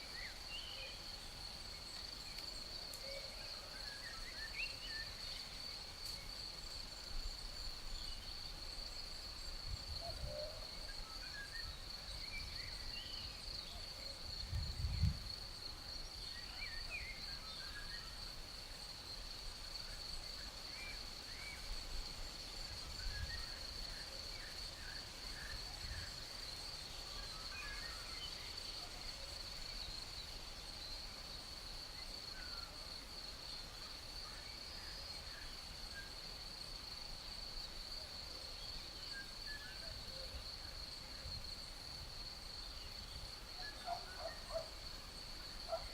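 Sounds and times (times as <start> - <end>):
crickets trilling: 0.0 - 45.9
wind rumbling on microphone: 14.3 - 15.5.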